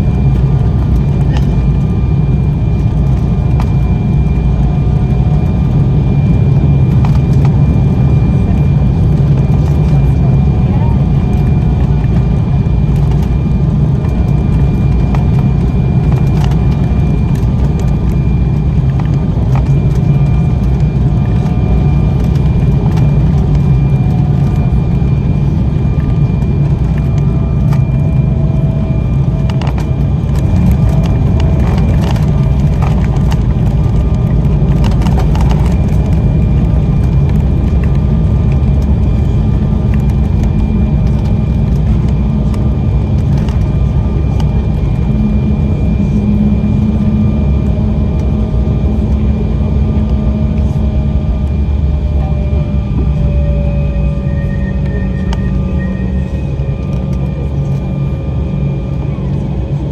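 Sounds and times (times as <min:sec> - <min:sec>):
jet engine cabin rumble: 0:00.0 - 0:59.9
faint high whine: 0:50.7 - 0:58.8.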